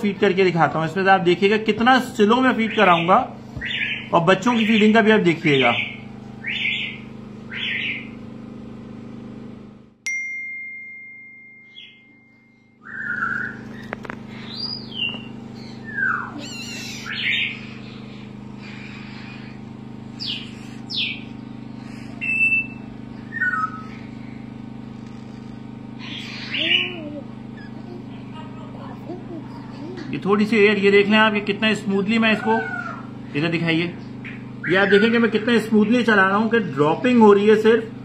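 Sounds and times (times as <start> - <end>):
steady low hum: 0.0 - 38.0
bird chirps and squeaks: 2.6 - 5.0, 5.7 - 8.2, 11.7 - 24.4, 25.1 - 28.0
steady high tone: 10.1 - 12.9.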